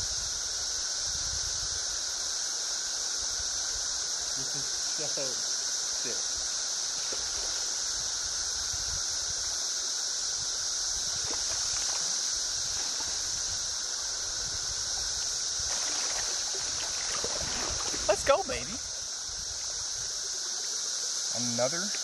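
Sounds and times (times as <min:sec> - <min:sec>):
cicadas droning: 0:00.0 - 0:22.0
river water rushing: 0:15.6 - 0:19.1.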